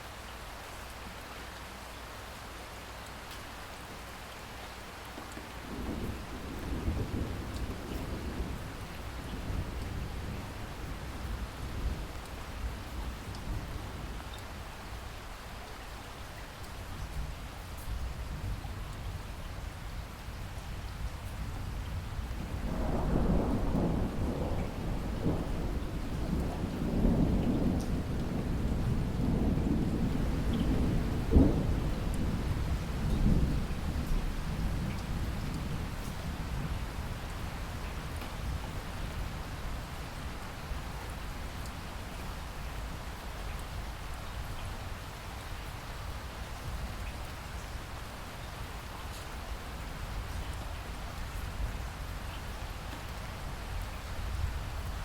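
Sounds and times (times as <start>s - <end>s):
heavy rain: 0.0s - 55.0s
low roll of thunder: 5.6s - 14.2s, 20.0s - 42.6s.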